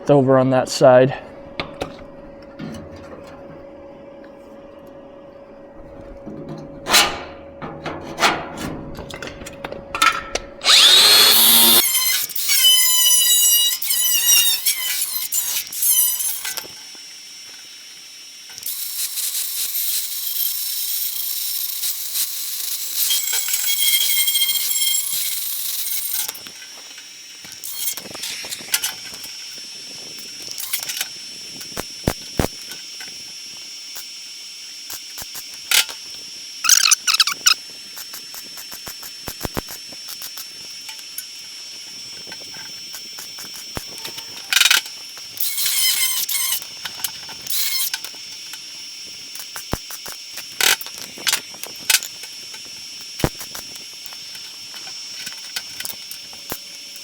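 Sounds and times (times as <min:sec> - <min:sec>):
power tool cutting sheet steel: 0:10.6 - 0:17.4, 0:18.4 - 0:29.4, 0:42.9 - 0:48.2.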